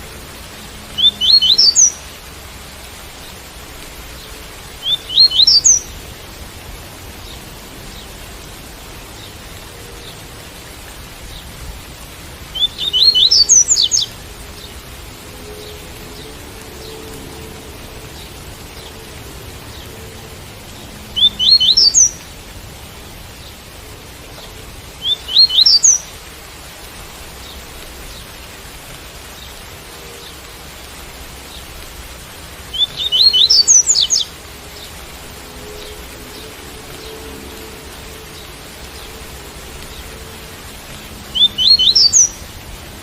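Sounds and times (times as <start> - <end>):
steady rain: 0.0 - 43.0
bird singing rising notes: 4.8 - 5.9, 12.5 - 14.2, 21.1 - 22.2, 25.0 - 26.0, 32.7 - 34.9, 41.3 - 42.4.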